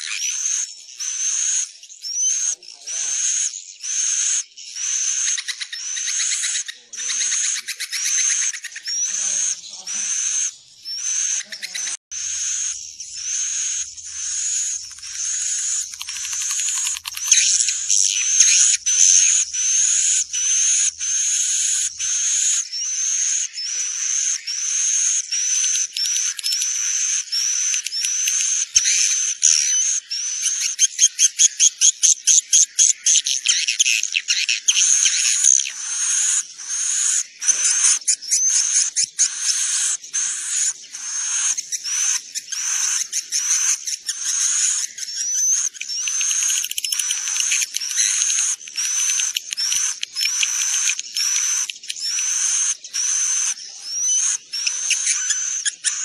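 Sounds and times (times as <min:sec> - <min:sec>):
swiftlets chirping: 0:13.1 - 0:19.5, 0:39.4 - 0:56.0.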